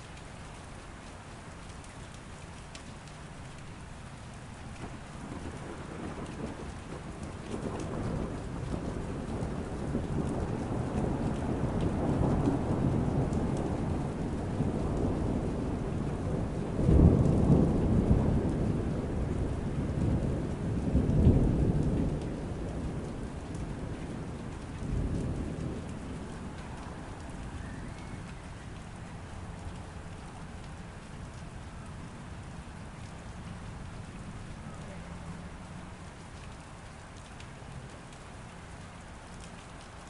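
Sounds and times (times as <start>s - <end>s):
steady rain: 0.0s - 40.0s
rolling thunder: 4.7s - 36.2s.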